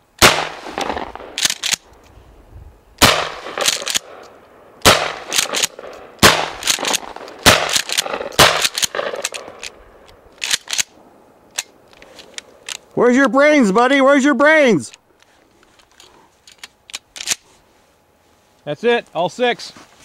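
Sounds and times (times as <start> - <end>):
shotgun shots: 0.2 - 1.8, 3.0 - 4.2, 4.8 - 9.7
shotgun pump racking clacks: 1.4 - 2.0, 3.6 - 4.1, 5.3 - 5.8, 6.6 - 9.8, 10.4 - 10.9.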